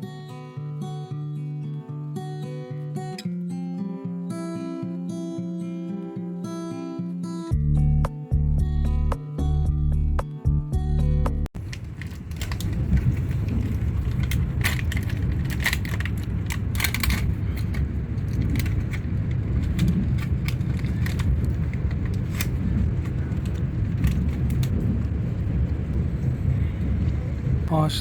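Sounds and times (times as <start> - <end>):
train clicks and rattles: 11.6 - 28.0
train rumbling: 11.6 - 28.0.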